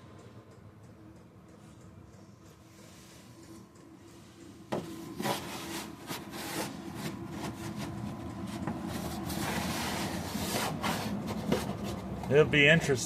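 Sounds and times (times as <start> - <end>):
scraping and rubbing: 4.8 - 12.2.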